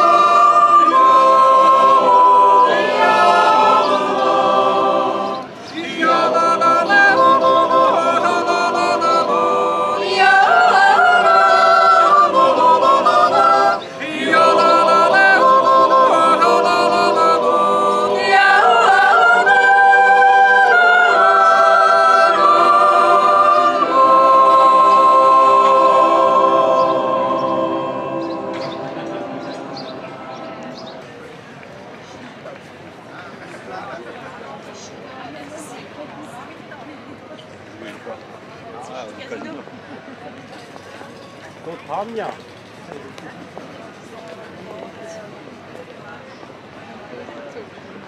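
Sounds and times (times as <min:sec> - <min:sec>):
choir yodeling a cappella: 0:00.0 - 0:31.1.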